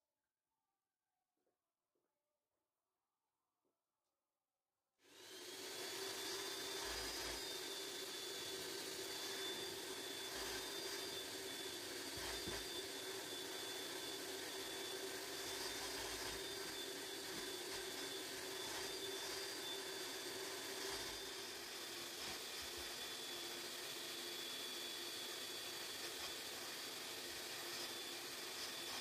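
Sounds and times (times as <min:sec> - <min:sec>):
vacuum cleaner running: 0:05.0 - 0:29.0.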